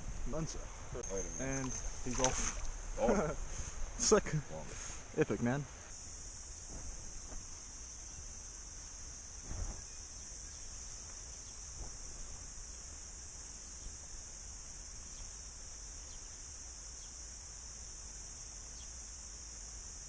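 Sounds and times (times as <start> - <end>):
wind rumble on microphone: 0.0 - 1.0
cicadas singing: 0.0 - 20.0.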